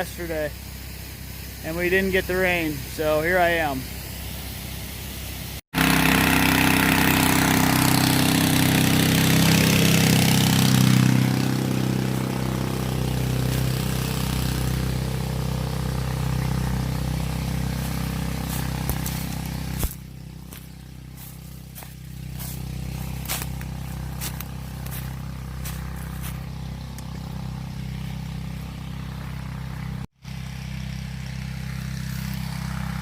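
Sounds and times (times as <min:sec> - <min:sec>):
small pump engine running: 0:00.0 - 0:33.0
water spraying from hose: 0:00.0 - 0:33.0.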